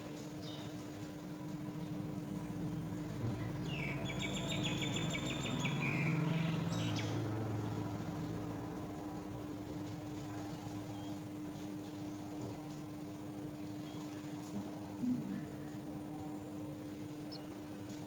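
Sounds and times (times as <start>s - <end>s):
steady low hum: 0.0s - 10.8s, 14.3s - 18.0s
young birds chittering: 3.4s - 7.2s, 17.2s - 17.6s.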